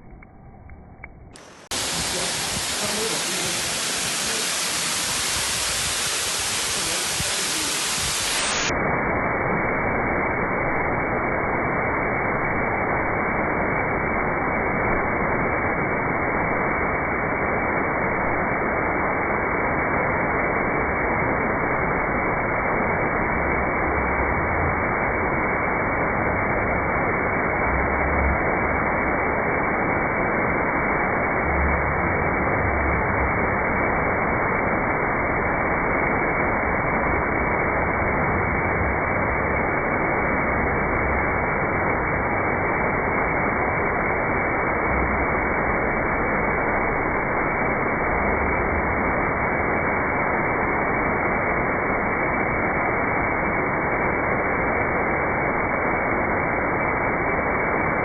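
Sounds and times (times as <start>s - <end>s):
steady rushing hiss: 1.4s - 58.0s.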